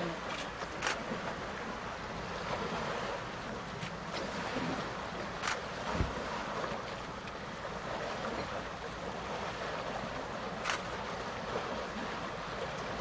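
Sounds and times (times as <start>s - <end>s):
river water: 0.0s - 13.0s
wind: 0.0s - 13.0s
sharp click: 10.6s - 11.0s.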